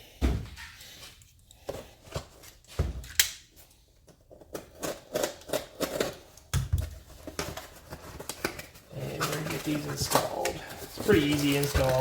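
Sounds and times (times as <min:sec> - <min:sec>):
package clicks taps and rustles: 0:04.3 - 0:12.0.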